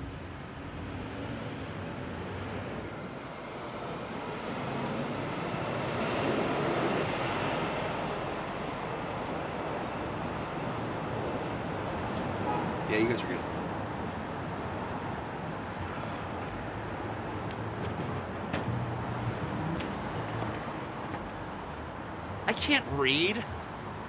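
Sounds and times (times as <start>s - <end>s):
city traffic rumble: 0.0s - 24.0s
vehicle passing: 16.6s - 21.1s.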